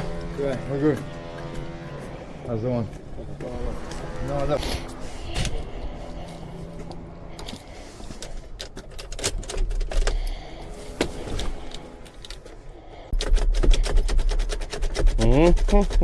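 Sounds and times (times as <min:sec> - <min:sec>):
metallic clicks and rattles: 0:08.2 - 0:10.3.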